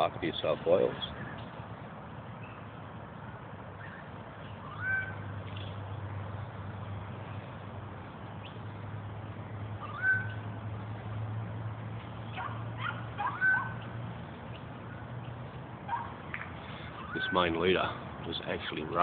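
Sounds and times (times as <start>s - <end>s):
bird calls sweeping upward: 3.8s - 6.1s, 9.7s - 10.5s.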